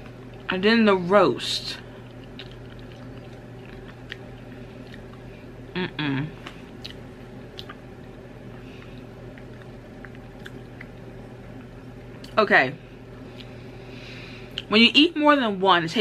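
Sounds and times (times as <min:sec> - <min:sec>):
person chewing popcorn: 0:01.9 - 0:05.3, 0:06.4 - 0:12.4
person humming: 0:05.7 - 0:06.4.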